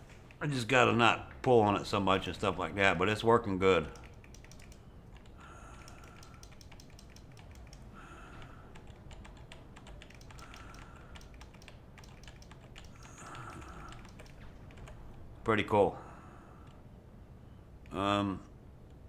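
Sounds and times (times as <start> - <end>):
computer keyboard clicking: 3.8 - 15.2.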